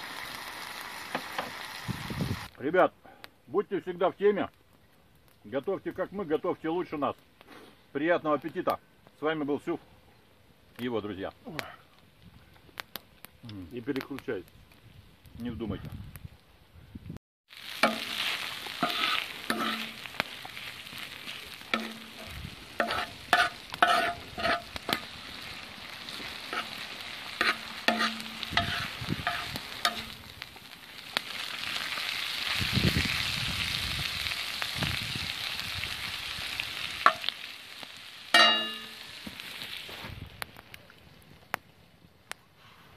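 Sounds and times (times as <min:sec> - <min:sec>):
food sizzling in a pan: 0:00.0 - 0:02.5, 0:17.5 - 0:40.2
metal spoon scraping a pan: 0:17.8 - 0:20.1, 0:21.7 - 0:25.1, 0:26.5 - 0:30.2.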